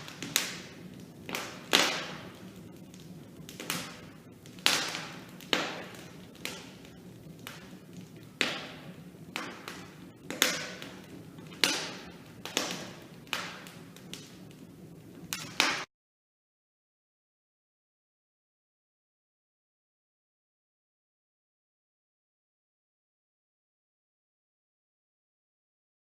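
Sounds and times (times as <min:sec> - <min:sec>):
low hiss: 0:00.0 - 0:15.9
sharp pops of fire: 0:00.0 - 0:15.9
wood fire crackling: 0:00.0 - 0:15.9.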